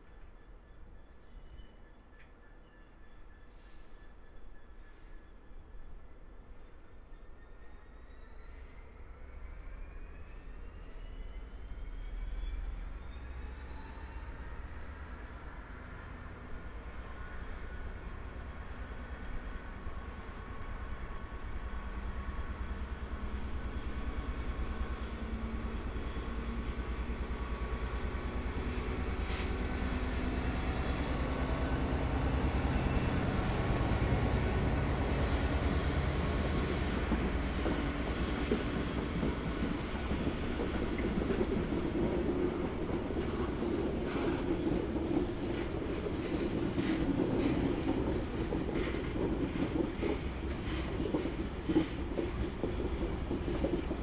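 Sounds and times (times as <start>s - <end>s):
locomotive engine hum: 16.0s - 54.0s.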